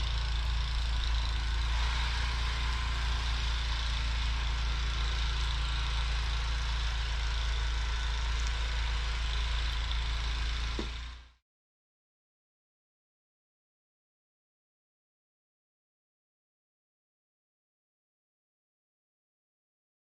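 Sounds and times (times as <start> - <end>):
snowblower engine running: 0.0 - 11.4.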